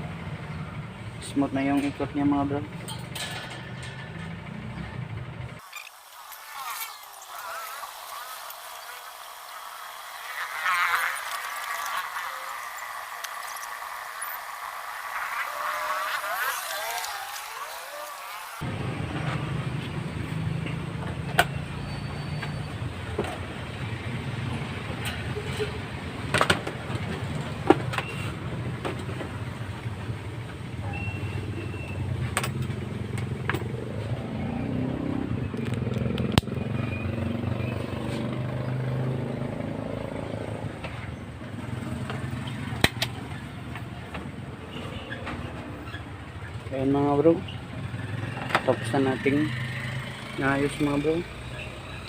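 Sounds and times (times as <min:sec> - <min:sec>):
electric fan motor hum: 0:05.0 - 0:19.0.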